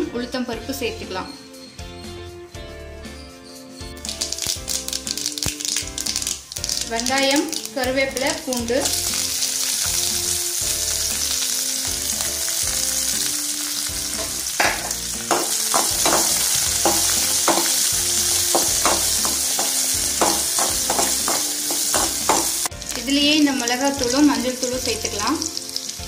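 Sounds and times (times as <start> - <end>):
onion and garlic sizzling in oil: 3.9 - 26.0
spatula scraping and tapping a pan: 14.2 - 22.7.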